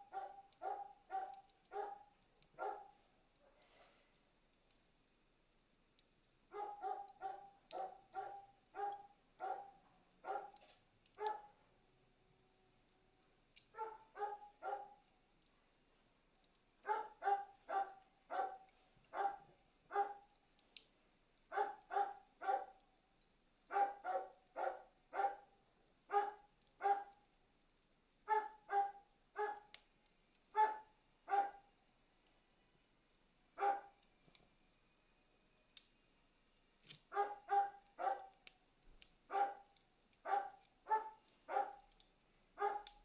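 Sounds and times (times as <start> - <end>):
dog barking: 0.0 - 3.7, 6.5 - 11.6, 13.7 - 15.1, 16.8 - 20.2, 21.5 - 22.8, 23.7 - 25.5, 26.1 - 27.2, 28.3 - 29.7, 30.6 - 31.7, 33.6 - 34.0, 37.1 - 38.4, 39.3 - 41.9, 42.6 - 43.0.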